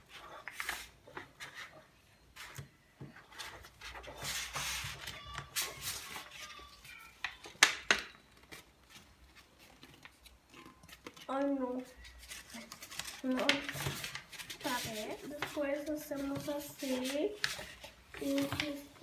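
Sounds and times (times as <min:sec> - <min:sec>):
paper rustling and crinkling: 0:00.0 - 0:19.0
sharp paper clicks: 0:07.2 - 0:11.4.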